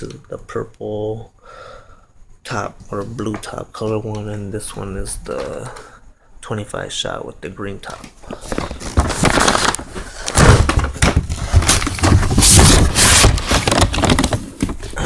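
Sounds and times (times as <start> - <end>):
cardboard scraping and knocking: 8.3 - 15.0.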